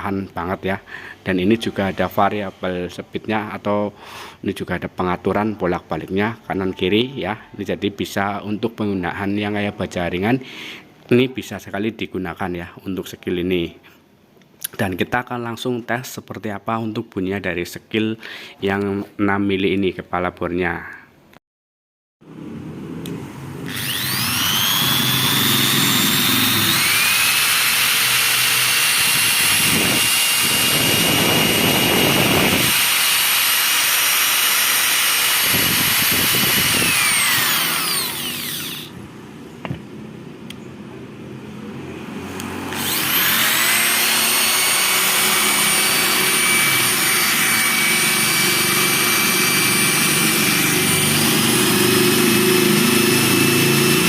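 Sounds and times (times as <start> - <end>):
electric drill motor whine: 23.6 - 38.9, 42.5 - 54.0.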